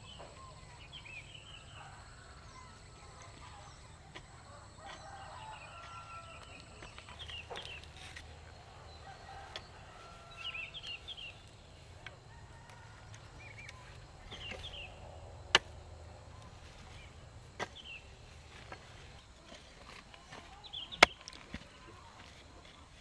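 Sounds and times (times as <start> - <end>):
bird chirping: 0.0 - 15.2.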